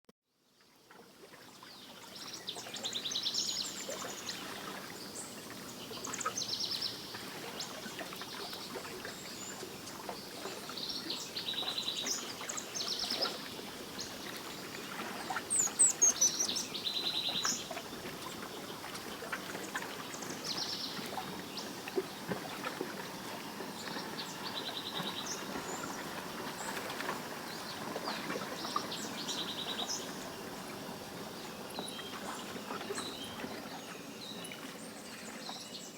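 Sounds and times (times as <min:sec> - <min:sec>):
steady background hiss: 0:20.0 - 0:35.9.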